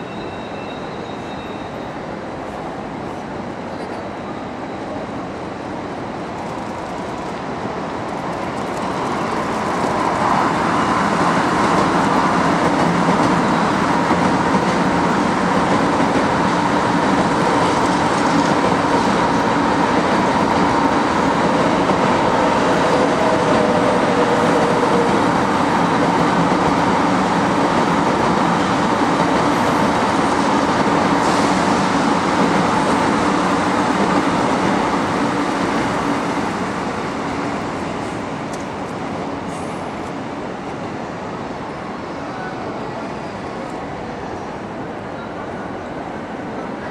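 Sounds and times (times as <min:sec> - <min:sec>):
train wheels rushing past: 0:06.3 - 0:40.4.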